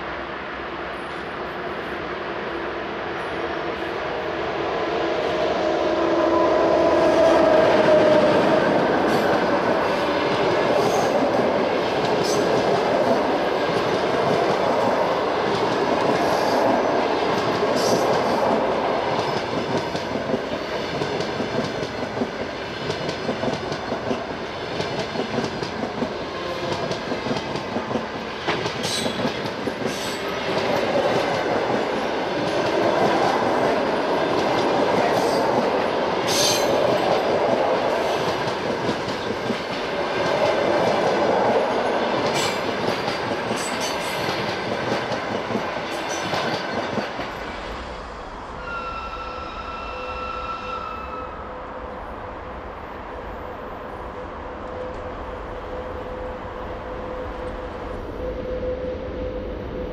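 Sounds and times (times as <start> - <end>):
train wheels clattering on rails: 7.2 - 47.6.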